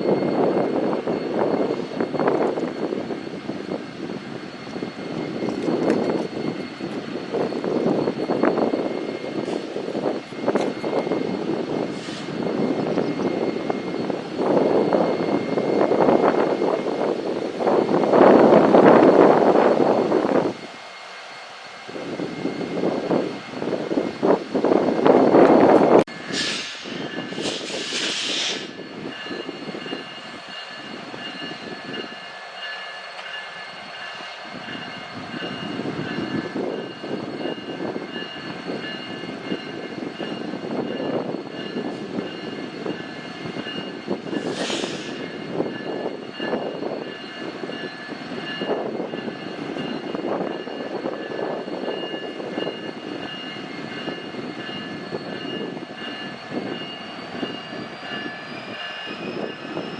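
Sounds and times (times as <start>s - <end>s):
air hiss: 11.8s - 12.5s, 26.2s - 28.8s, 44.3s - 45.3s.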